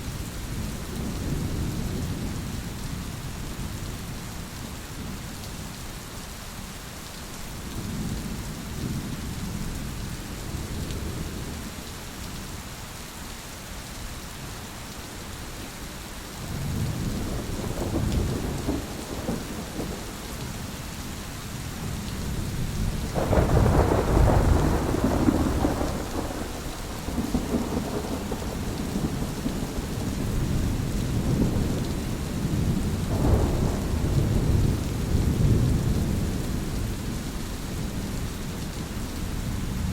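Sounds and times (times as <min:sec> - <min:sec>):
steady rain: 0:00.0 - 0:39.9
rolling thunder: 0:16.5 - 0:20.2, 0:22.2 - 0:36.7.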